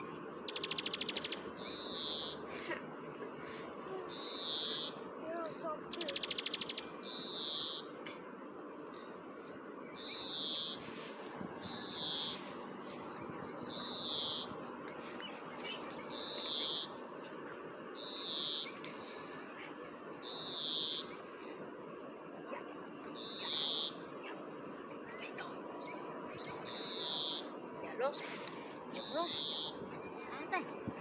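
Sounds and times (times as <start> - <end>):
steady outdoor background hiss: 0.0 - 31.0
bird calling: 0.4 - 2.8, 3.4 - 8.1, 9.7 - 12.7, 13.5 - 19.3, 19.9 - 21.5, 23.0 - 24.2, 25.7 - 30.7.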